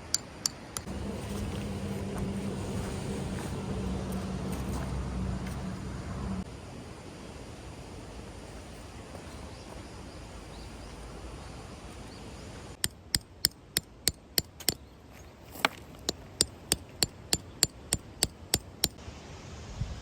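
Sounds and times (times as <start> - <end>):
hammer striking tent peg: 12.8 - 14.8, 16.1 - 19.0.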